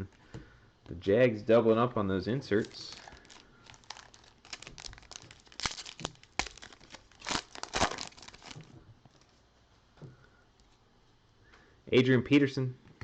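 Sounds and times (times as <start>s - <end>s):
wrapper tearing and crinkling: 2.5s - 8.7s.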